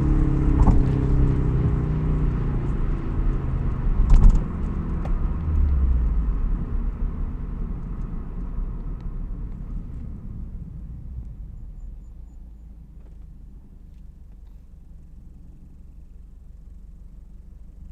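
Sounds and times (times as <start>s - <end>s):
car engine revs falling: 0.0s - 12.0s.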